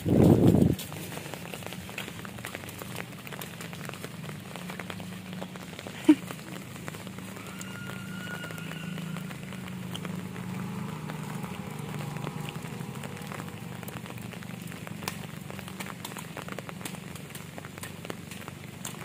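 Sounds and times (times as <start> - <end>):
rain falling: 0.0 - 19.0
raindrops clicking on surfaces: 0.0 - 19.0
low steady hum: 8.7 - 19.0.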